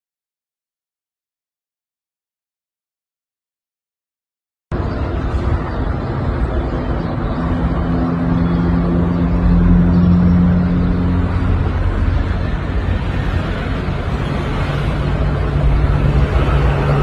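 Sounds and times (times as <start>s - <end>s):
loud rumbling noise: 4.7s - 17.0s
low motor hum: 4.8s - 17.0s.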